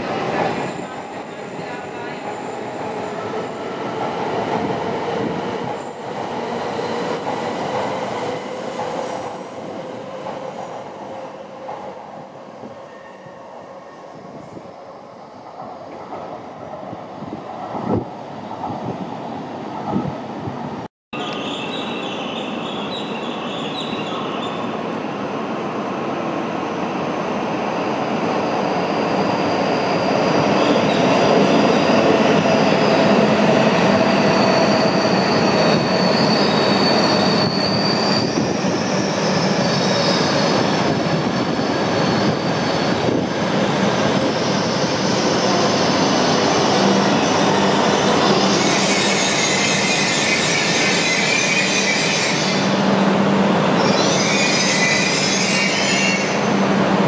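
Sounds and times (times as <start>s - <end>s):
high-pitched wheel squeals: 34.2s - 40.4s, 48.3s - 52.8s, 53.8s - 56.5s.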